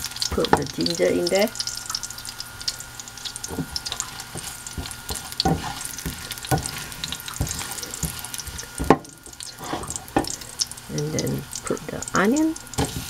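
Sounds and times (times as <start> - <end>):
ginger sizzling in hot oil: 0.0 - 13.0
spatula scraping a wok: 3.5 - 10.3.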